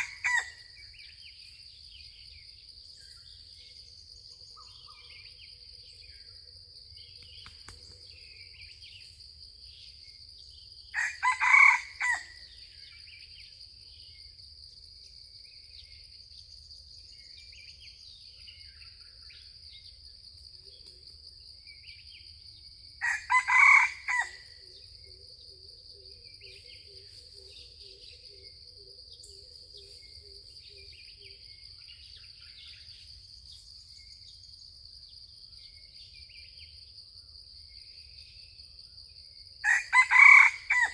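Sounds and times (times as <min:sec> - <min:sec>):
rooster crowing: 0:00.0 - 0:00.6, 0:11.0 - 0:12.4, 0:23.0 - 0:24.5, 0:39.6 - 0:40.9
high insect drone: 0:00.0 - 0:40.9.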